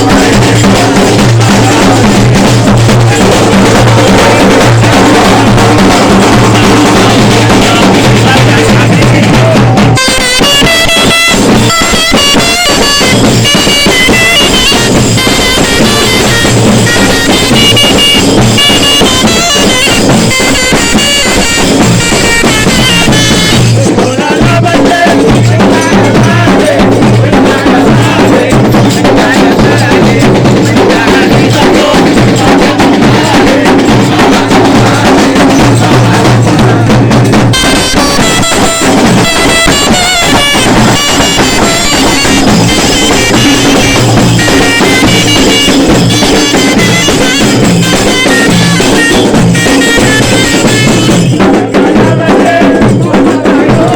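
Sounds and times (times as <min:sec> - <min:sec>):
drumming: 0:00.0 - 0:53.9
bagpipes with drone: 0:37.6 - 0:51.0.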